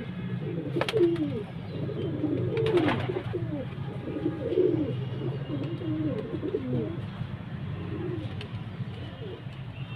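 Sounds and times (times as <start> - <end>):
pigeons cooing: 0.4 - 7.0, 7.8 - 8.4.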